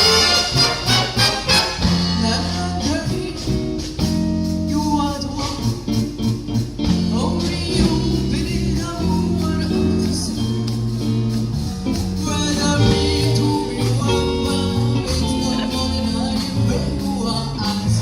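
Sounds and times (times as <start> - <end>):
band playing live: 0.0 - 18.0
person singing: 6.9 - 18.0.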